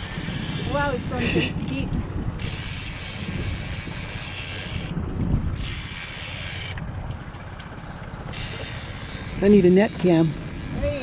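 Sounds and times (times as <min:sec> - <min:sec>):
fishing reel clicking: 0:00.0 - 0:01.2, 0:02.4 - 0:06.8, 0:08.3 - 0:11.0
low motor rumble: 0:03.5 - 0:11.0.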